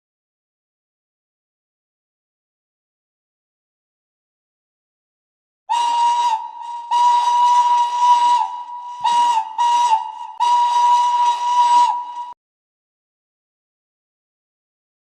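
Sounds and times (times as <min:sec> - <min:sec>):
steam locomotive whistle blasts: 0:05.7 - 0:12.4.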